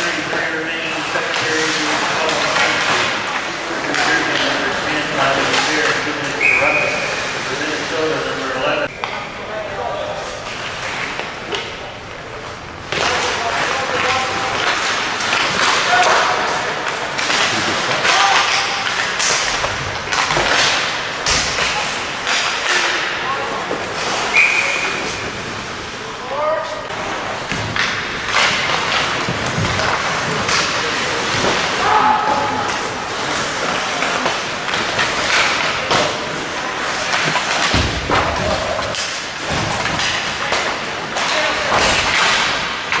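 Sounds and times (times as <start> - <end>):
steady rink noise: 0.0 - 43.0
distant shouts: 31.7 - 32.8
thuds against hockey boards: 37.2 - 40.3.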